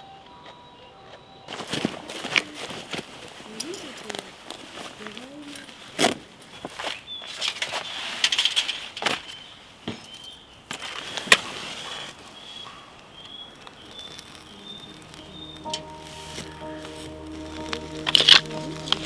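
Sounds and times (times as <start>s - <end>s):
burning wood crackling: 1.5s - 19.0s
faint high chirp: 12.4s - 19.0s.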